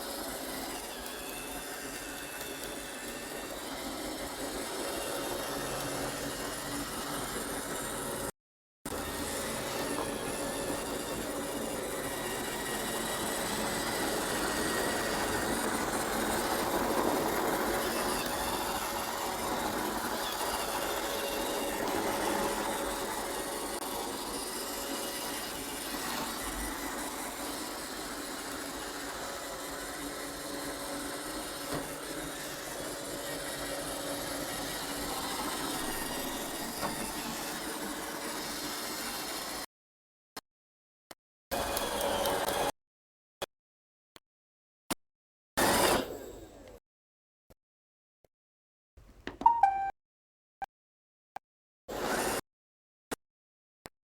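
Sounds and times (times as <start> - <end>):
robot vacuum cleaner droning: 0.1 - 8.3, 8.9 - 39.6.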